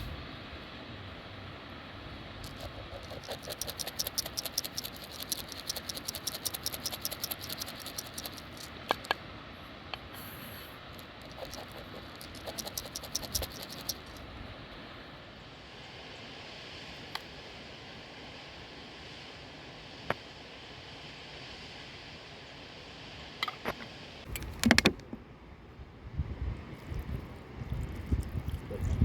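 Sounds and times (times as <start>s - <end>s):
steady low hiss: 0.0s - 29.0s
fast run of light clicks: 2.4s - 9.1s, 11.0s - 14.2s.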